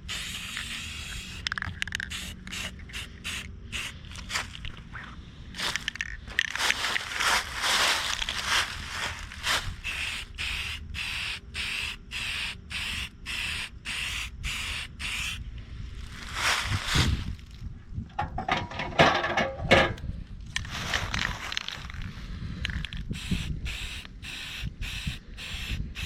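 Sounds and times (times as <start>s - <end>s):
spray-paint can hissing: 0.0s - 4.0s, 9.8s - 15.4s, 23.1s - 26.0s
spray can rattling: 0.0s - 4.3s, 9.8s - 15.4s, 22.7s - 26.0s.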